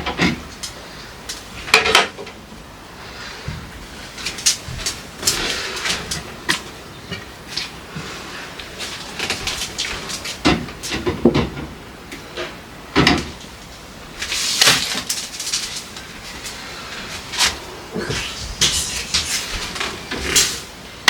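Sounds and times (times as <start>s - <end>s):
rustling hiss: 0.0s - 11.2s, 11.8s - 21.0s
containers knocking and clattering: 9.2s - 11.8s.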